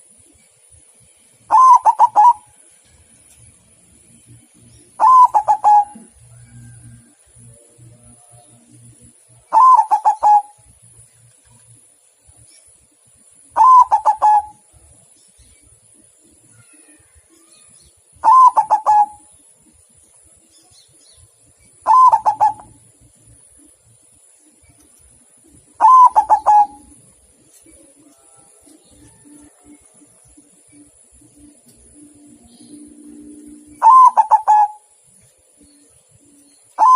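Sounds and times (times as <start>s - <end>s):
dove staccato cooing: 1.5s - 2.5s, 4.9s - 7.5s, 9.5s - 10.6s, 13.6s - 14.6s, 18.2s - 19.3s, 21.8s - 22.9s, 25.8s - 27.0s, 28.9s - 34.9s.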